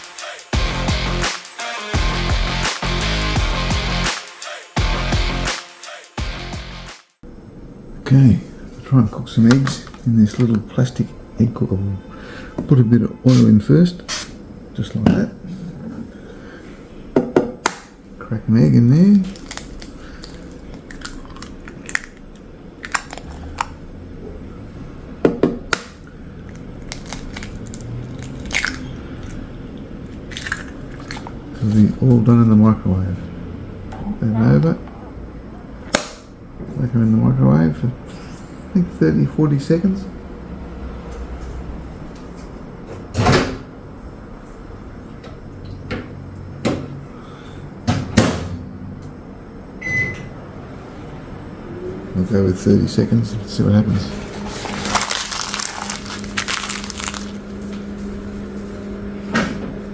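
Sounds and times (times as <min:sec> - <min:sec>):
eggshell cracking: 0:19.3 - 0:23.8, 0:26.4 - 0:29.4, 0:30.2 - 0:31.4, 0:54.8 - 0:57.4
short keypad beep: 0:49.8 - 0:50.3.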